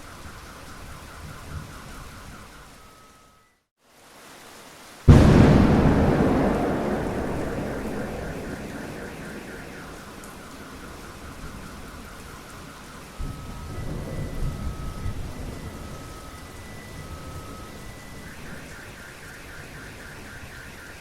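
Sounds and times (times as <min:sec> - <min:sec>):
steady rain: 0:00.0 - 0:03.1, 0:03.8 - 0:21.0
thunder rumbling: 0:05.1 - 0:16.0.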